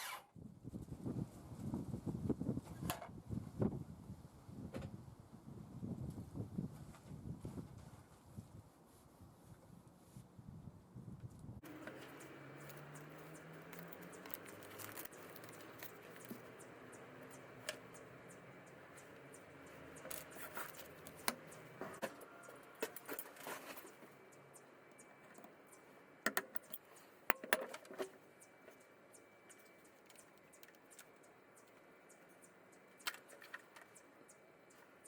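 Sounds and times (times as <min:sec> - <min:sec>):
objects clicking and rattling: 0:11.7 - 0:16.7.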